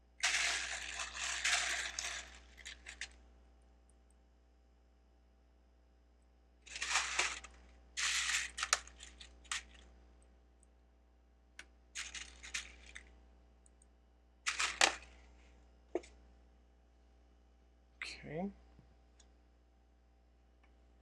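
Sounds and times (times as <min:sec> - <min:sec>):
plastic bricks rattling and clicking: 0:00.2 - 0:03.2, 0:06.7 - 0:09.8, 0:12.0 - 0:13.1, 0:14.5 - 0:15.1.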